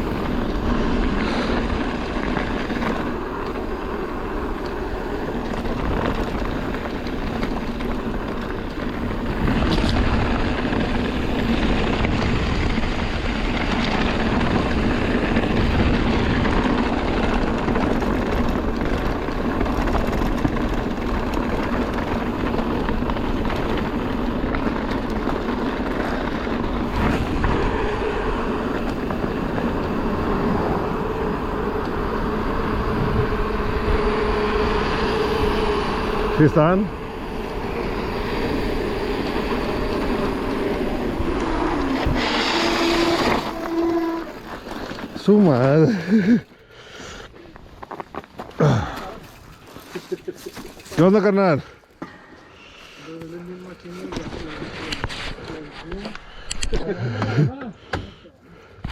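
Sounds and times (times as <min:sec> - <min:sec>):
wind rushing over microphone: 0:00.0 - 0:45.8
bike rolling rumble: 0:00.0 - 0:58.9.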